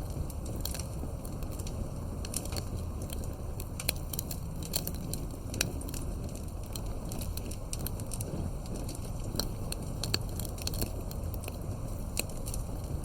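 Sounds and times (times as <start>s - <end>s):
fire crackling pops and snaps: 0.0s - 13.0s
low steady rumble: 0.0s - 13.0s.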